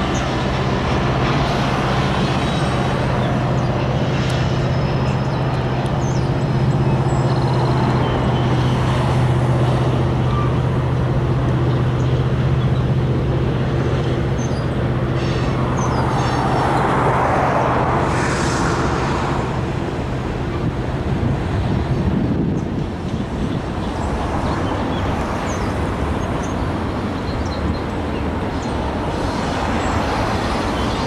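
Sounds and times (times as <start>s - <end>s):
distant freight train rumbling: 0.0s - 31.0s
low steady drone: 14.7s - 21.4s.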